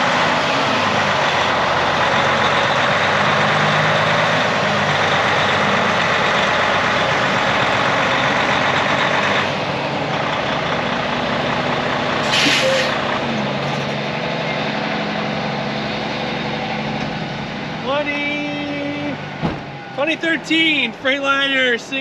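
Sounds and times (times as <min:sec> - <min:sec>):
diesel engine idling: 0:00.0 - 0:22.0
air brake hiss: 0:12.2 - 0:13.0.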